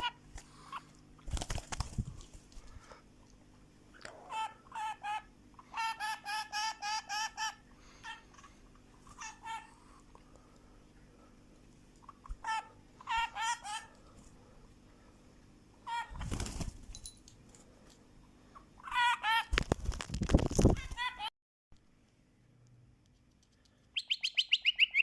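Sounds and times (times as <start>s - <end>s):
pet bird calling: 24.0s - 25.0s.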